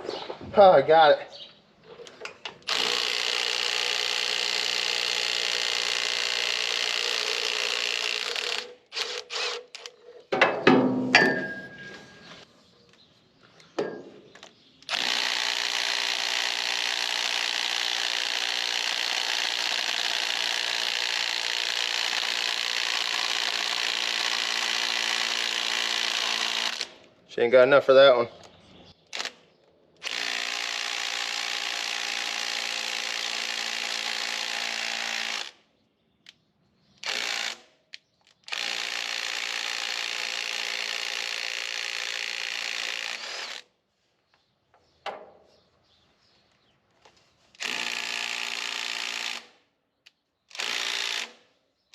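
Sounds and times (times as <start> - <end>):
metal clanks: 10.2 - 12.3.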